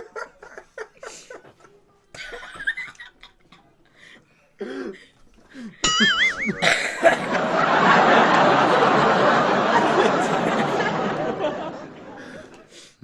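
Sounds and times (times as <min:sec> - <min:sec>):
people chuckling: 0:00.0 - 0:03.6, 0:05.8 - 0:12.7
loud wavering high tone: 0:05.8 - 0:07.0
people coughing: 0:05.8 - 0:12.7.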